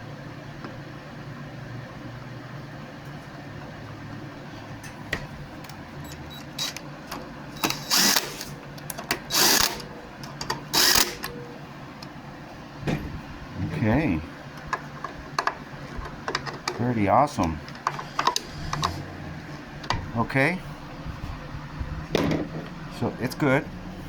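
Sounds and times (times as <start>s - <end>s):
steady low hum: 0.0s - 24.0s
screwing clicks: 6.1s - 11.4s, 17.8s - 19.0s.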